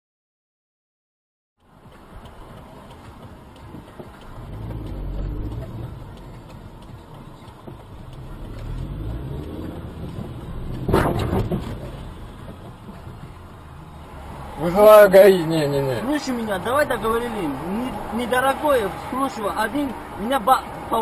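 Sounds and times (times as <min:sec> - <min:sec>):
car engine rumbling: 0:01.6 - 0:21.0
vehicle collision crash: 0:10.7 - 0:13.0.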